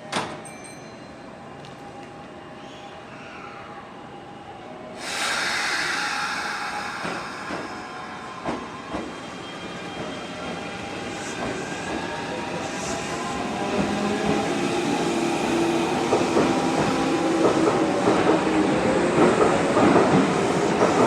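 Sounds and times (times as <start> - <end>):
air brakes hissing: 5.0 - 8.9.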